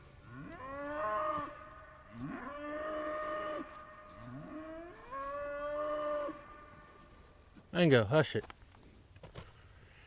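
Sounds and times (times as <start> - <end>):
cow mooing: 0.3 - 6.9.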